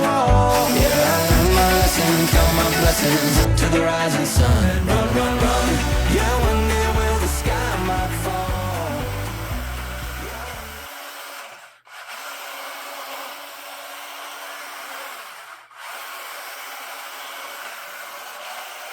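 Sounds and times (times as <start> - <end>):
song: 0.0 - 10.7
steady hiss: 0.6 - 3.5.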